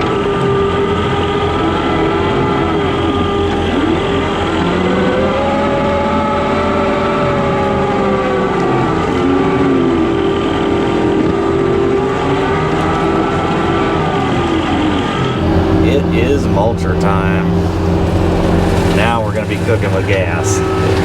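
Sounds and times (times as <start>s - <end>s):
skid steer diesel engine whining: 15.4s - 21.0s.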